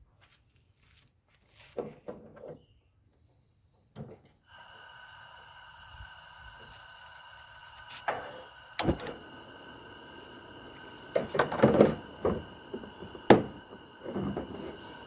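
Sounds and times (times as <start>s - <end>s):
steady hum of even tones: 4.6s - 15.0s.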